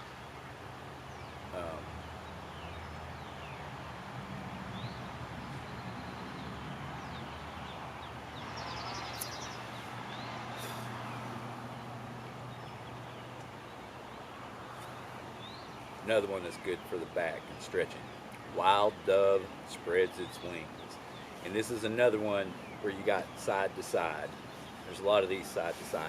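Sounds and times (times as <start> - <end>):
engine hum: 0.0 - 19.4
birds chirping: 0.0 - 26.0.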